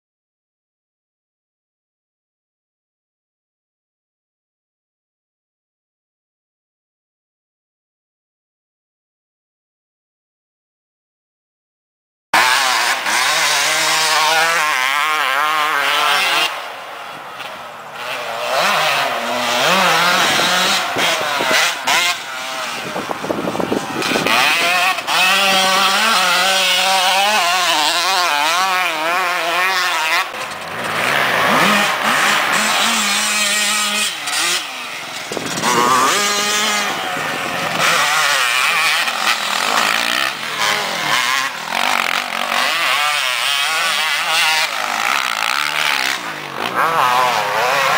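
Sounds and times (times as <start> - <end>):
dirt bike engines revving: 12.4 - 47.9.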